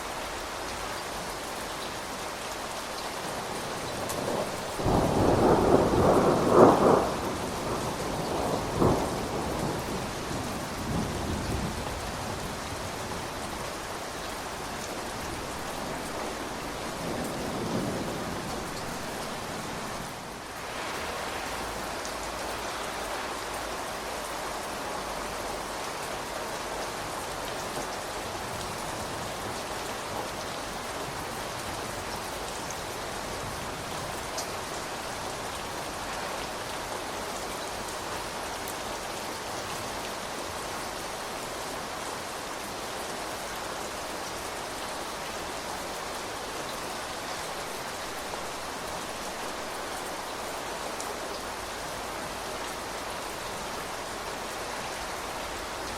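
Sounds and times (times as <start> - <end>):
rain falling: 0.0 - 55.9.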